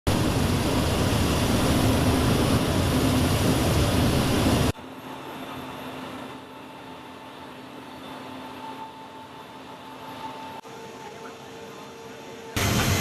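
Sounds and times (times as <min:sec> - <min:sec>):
jet engines roaring: 0:00.1 - 0:04.8, 0:12.6 - 0:13.0.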